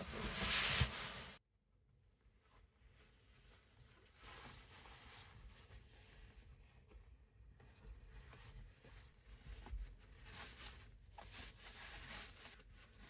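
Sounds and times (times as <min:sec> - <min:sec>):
faint rustling: 0:00.0 - 0:01.4.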